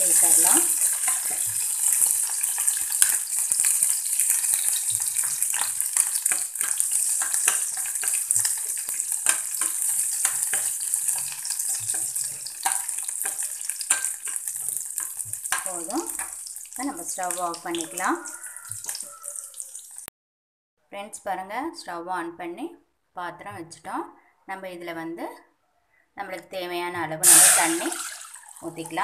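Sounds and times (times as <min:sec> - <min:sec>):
spatula scraping a pan: 0:00.0 - 0:20.0
nuts sizzling in a pan: 0:00.0 - 0:20.1, 0:27.2 - 0:29.0.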